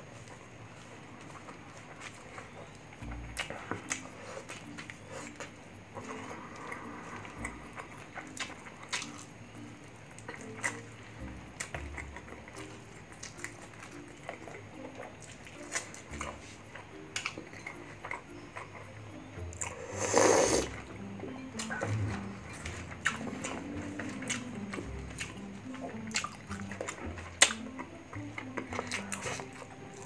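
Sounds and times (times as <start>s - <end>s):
wet chewing and lip smacking: 0.0s - 30.0s.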